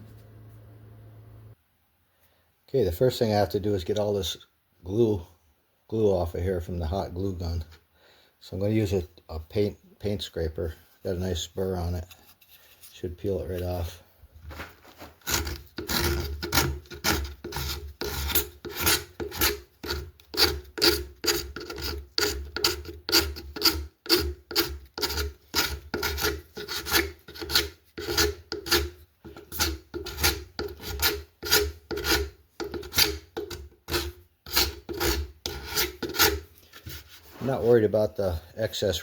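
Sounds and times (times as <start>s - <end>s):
paint scraper scraping glue: 14.9s - 37.8s.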